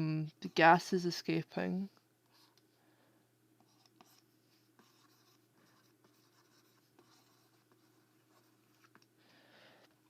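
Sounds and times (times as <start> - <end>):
pen scratching on paper: 3.6 - 9.0.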